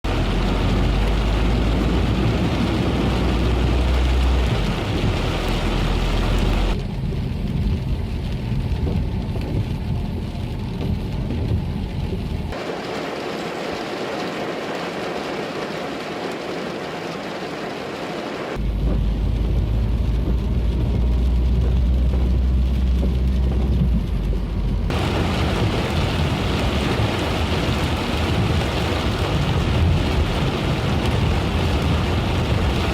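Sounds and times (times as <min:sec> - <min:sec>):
deep rumble: 0:00.0 - 0:12.6, 0:18.6 - 0:32.9
heavy rain hissing: 0:12.5 - 0:18.6, 0:24.9 - 0:32.9.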